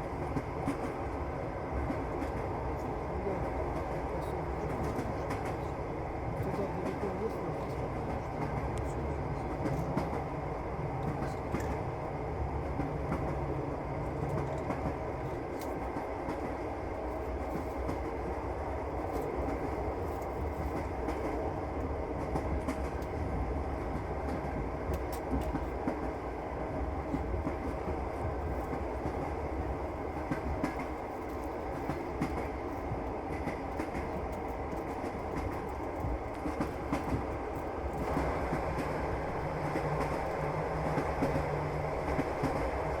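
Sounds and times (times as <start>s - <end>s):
train rumbling on the track: 0.0s - 43.0s.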